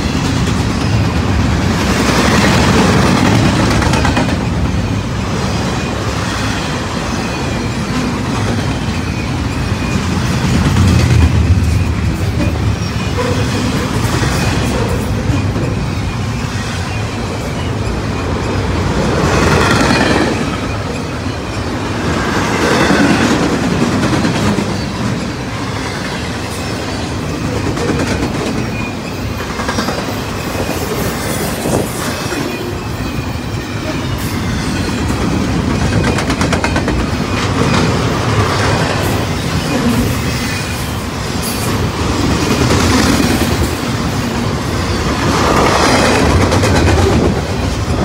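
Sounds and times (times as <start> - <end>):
freight train wheels rumbling on rails: 0.0 - 48.0.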